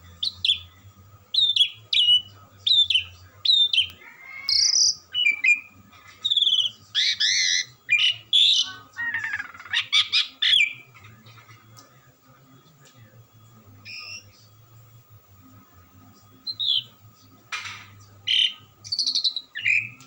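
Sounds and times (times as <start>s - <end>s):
starling whistling and chattering: 0.0s - 11.8s, 13.8s - 14.5s, 16.3s - 17.0s, 18.2s - 20.0s.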